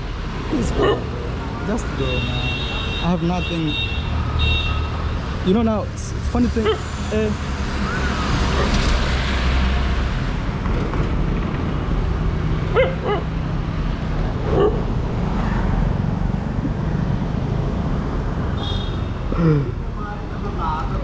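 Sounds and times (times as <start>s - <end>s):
street noise: 0.0s - 21.0s
dog barking: 0.7s - 1.1s, 12.7s - 13.3s, 14.5s - 14.9s.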